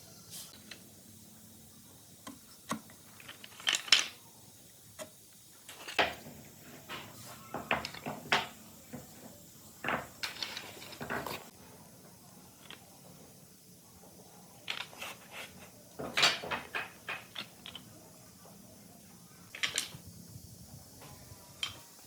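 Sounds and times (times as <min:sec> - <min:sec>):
hard objects clattering: 0:05.7 - 0:11.5, 0:14.6 - 0:17.9.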